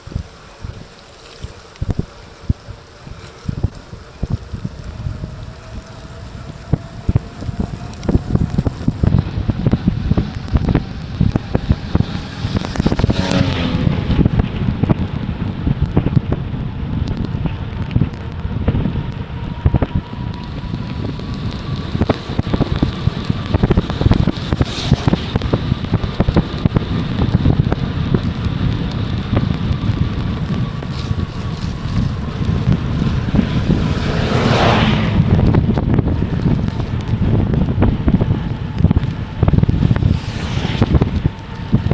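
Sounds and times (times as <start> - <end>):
rushing hiss: 0.0 - 10.8
bike rattling and rolling: 0.0 - 41.9
wind buffeting microphone: 0.0 - 41.9.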